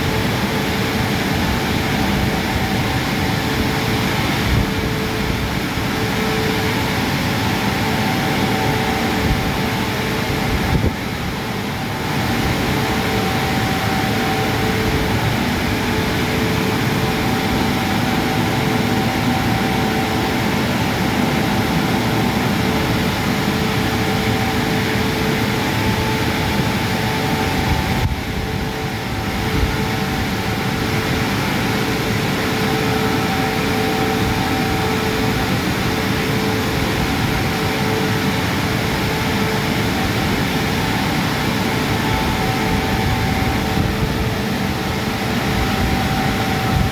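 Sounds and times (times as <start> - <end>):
car wash rush of air and water: 0.0 - 46.9
steady whining tones: 0.0 - 46.9.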